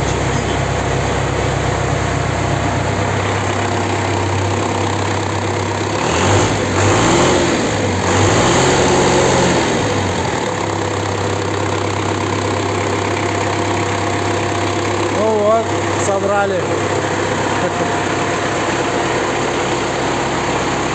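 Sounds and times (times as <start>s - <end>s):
engine idling and revving: 0.0s - 20.9s.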